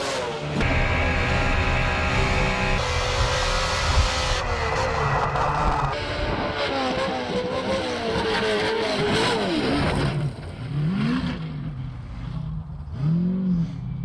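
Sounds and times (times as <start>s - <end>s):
truck engine revving: 0.0s - 10.1s.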